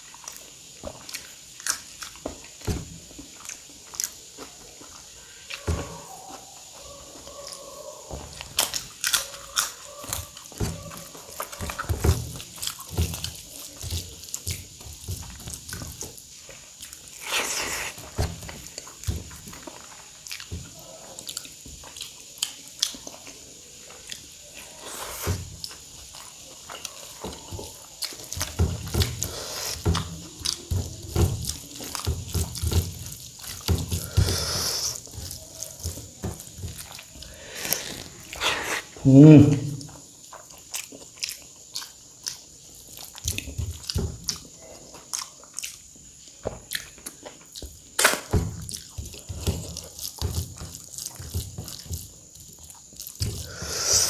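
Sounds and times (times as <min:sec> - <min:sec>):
crunching: 0:00.0 - 0:54.0
person chewing with wet smacking: 0:00.0 - 0:54.0.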